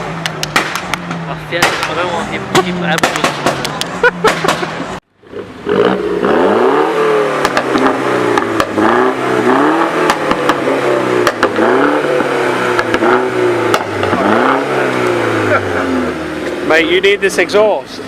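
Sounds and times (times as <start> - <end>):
exhaust cracks: 0.0 - 17.5
car engine revving loudly: 4.3 - 17.5.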